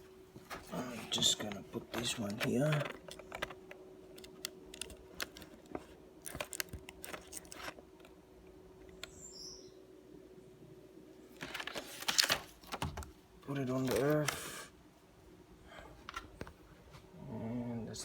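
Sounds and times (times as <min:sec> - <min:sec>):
faint steady hum: 0:00.0 - 0:18.0
laptop parts clicking: 0:01.4 - 0:08.2.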